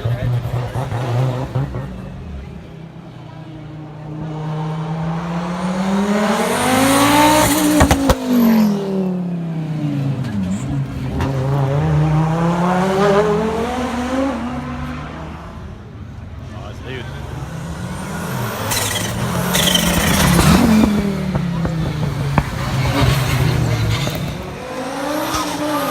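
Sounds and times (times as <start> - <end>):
rally car engine accelerating: 0.0 - 15.6, 17.1 - 25.9
exhaust cracks: 18.6 - 24.6.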